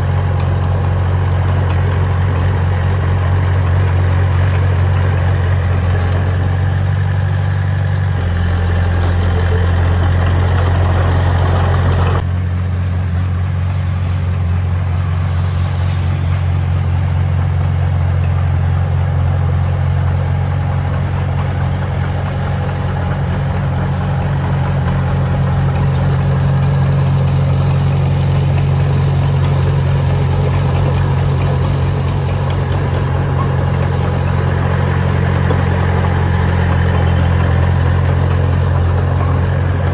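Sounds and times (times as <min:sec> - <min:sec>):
heavy machinery diesel engine: 0:00.0 - 0:39.9.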